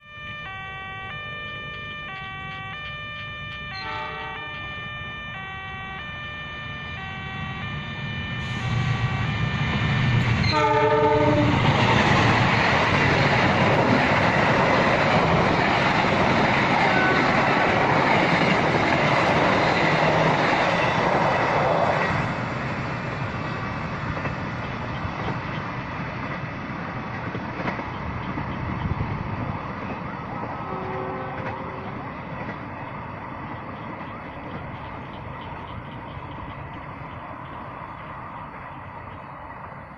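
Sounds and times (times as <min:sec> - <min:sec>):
electronic crossing alarm: 0:00.0 - 0:10.7
train carriages rolling past: 0:00.0 - 0:39.9
train horn blast: 0:03.5 - 0:11.7, 0:16.9 - 0:17.4, 0:30.6 - 0:32.0.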